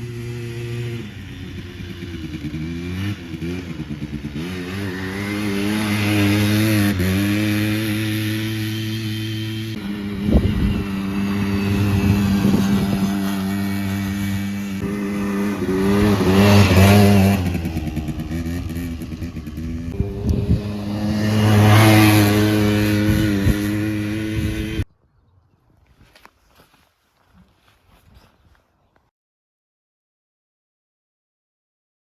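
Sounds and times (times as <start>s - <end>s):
two-stroke engine revving: 0.0s - 24.9s.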